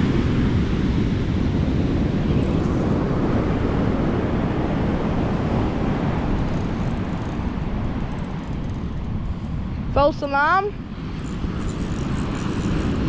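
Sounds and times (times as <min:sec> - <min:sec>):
surf washing: 0:00.0 - 0:08.6
wind buffeting microphone: 0:00.0 - 0:13.0.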